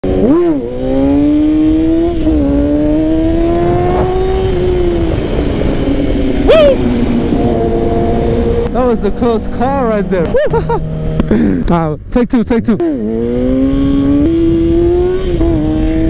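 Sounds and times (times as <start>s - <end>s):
motorcycle engine accelerating: 0.0s - 11.8s, 12.7s - 16.0s.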